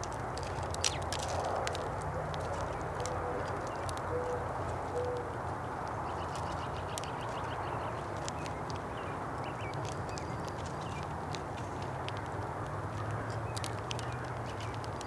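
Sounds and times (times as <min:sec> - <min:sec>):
sharp clicks: 0:00.0 - 0:04.4, 0:05.0 - 0:15.0
dove cooing: 0:03.0 - 0:05.3.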